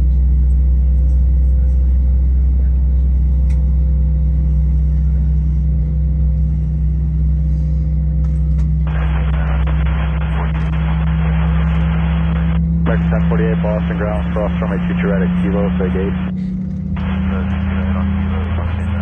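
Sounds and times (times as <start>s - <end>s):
low aircraft cabin drone: 0.0s - 19.0s
tinny radio feed: 8.9s - 16.4s, 17.0s - 19.0s.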